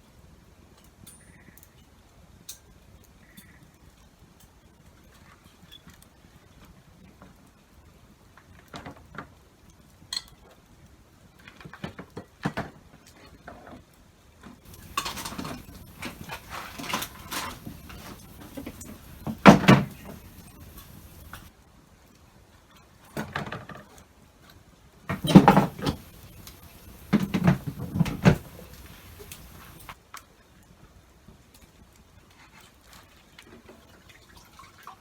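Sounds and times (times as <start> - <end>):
clattering: 14.7 - 21.5, 25.1 - 30.0
objects knocking and clinking: 14.7 - 21.5, 25.1 - 30.0
steady hiss: 14.7 - 21.5, 25.1 - 30.0.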